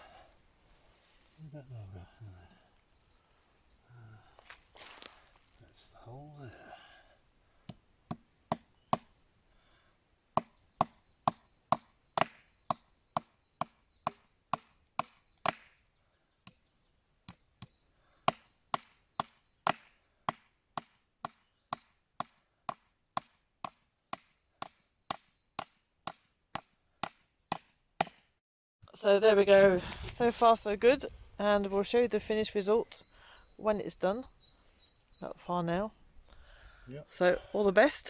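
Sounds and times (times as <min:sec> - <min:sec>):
hammer striking wood: 0:10.4 - 0:15.8, 0:18.3 - 0:28.3.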